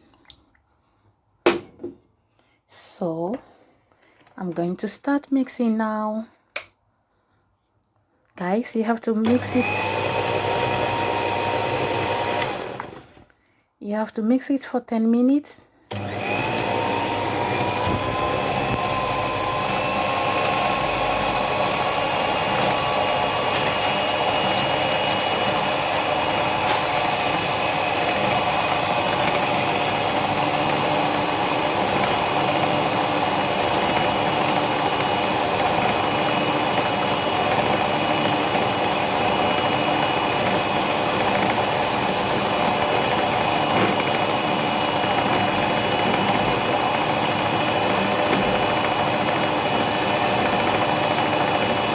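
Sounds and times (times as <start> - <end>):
electric mixer motor whining: 9.2 - 13.3, 15.9 - 51.9.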